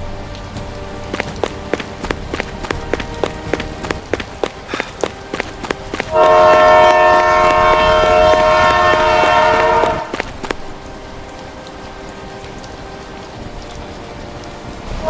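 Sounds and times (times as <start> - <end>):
train horn blast: 0.0 - 15.0
train rumbling: 0.0 - 15.0.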